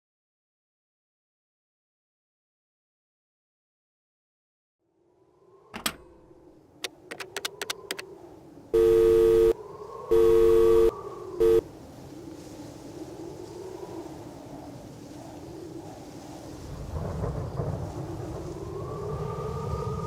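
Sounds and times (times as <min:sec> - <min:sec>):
clicks: 0:06.8 - 0:08.1
two-note telephone tone: 0:08.8 - 0:11.6.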